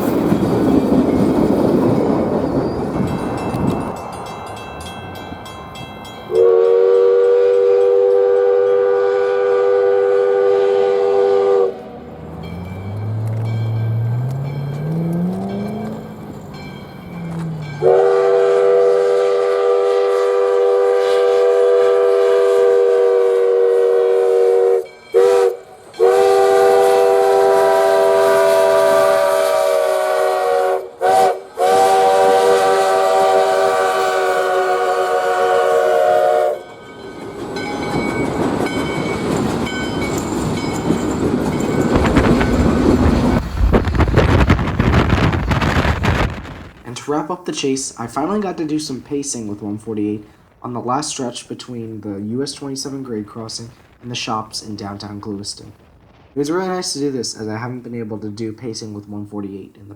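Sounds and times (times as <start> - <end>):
train running noise: 0.0 - 47.1
steam locomotive whistle: 6.3 - 11.9, 17.6 - 36.9.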